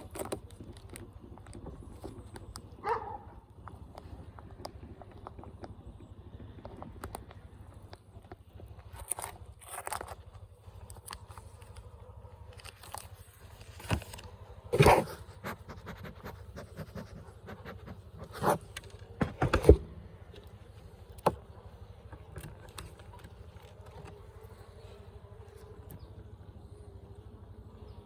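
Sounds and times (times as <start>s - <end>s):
wood scraping and knocking: 16.8s - 19.9s.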